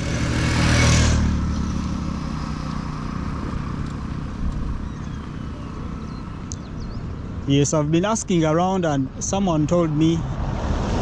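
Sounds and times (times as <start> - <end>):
vehicle passing by: 0.0 - 7.4, 9.3 - 11.0.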